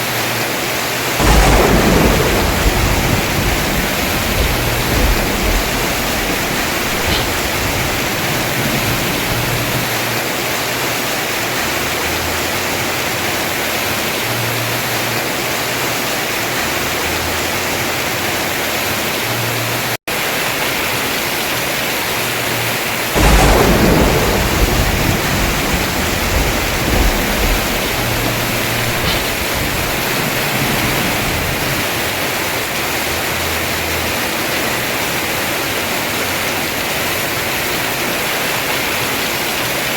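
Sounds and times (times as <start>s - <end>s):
heavy rain on roof: 0.0s - 39.9s
thunder rumbling: 1.2s - 10.8s, 22.7s - 39.7s.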